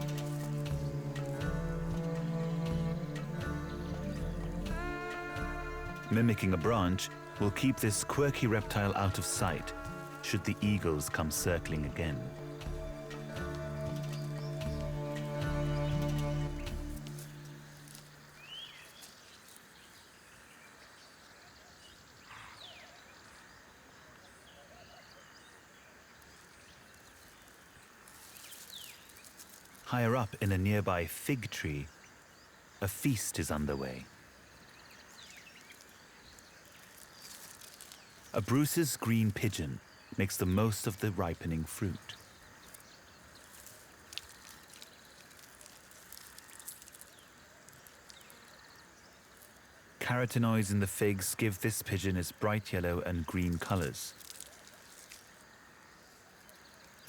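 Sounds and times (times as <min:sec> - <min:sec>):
soft ticks and rustles: 0:00.0 - 0:03.5, 0:08.4 - 0:20.1, 0:26.1 - 0:30.8, 0:34.5 - 0:39.7, 0:40.3 - 0:57.0
faint outdoor ambience: 0:00.0 - 0:57.0
low steady hiss: 0:00.0 - 0:57.0
soft bird calls: 0:00.0 - 0:57.0.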